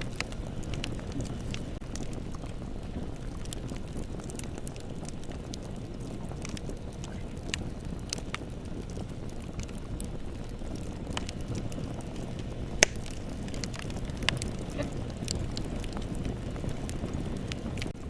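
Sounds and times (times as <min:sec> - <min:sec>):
burning wood crackling and popping: 0:00.0 - 0:18.0
low rumble of flames: 0:00.0 - 0:18.0.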